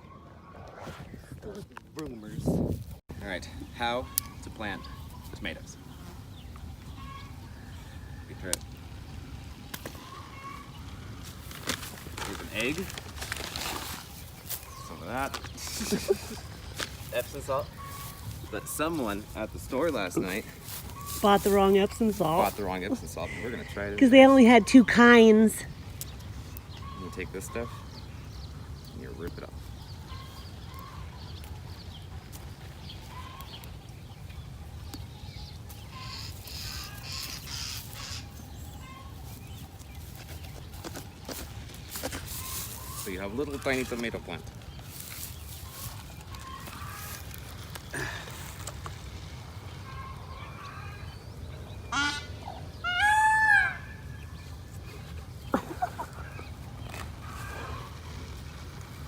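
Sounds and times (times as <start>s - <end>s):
chickens clucking: 3.2s - 59.0s
loud honking bird calls: 3.7s - 9.1s, 9.8s - 22.7s, 26.7s - 28.2s, 35.8s - 39.2s, 49.6s - 54.4s
scratchy rustling noise: 11.3s - 14.8s.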